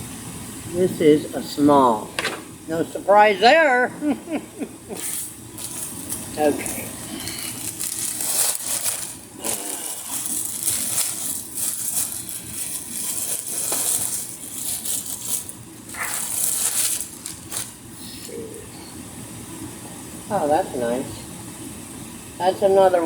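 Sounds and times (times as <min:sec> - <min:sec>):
plastic packaging crinkling: 0:05.0 - 0:18.4.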